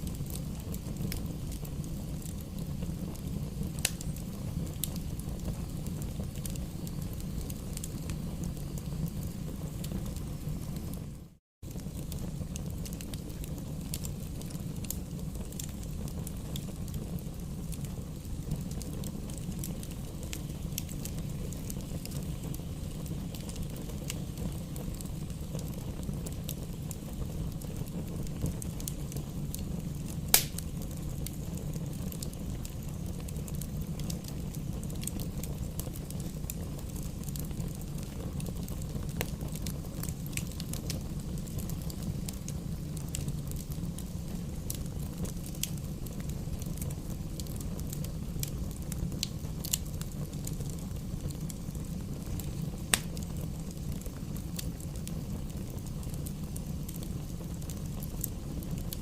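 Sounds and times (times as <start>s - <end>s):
campfire rumble and crackles: 0.0s - 59.0s
sharp fire pop: 30.3s - 30.7s, 52.9s - 53.2s.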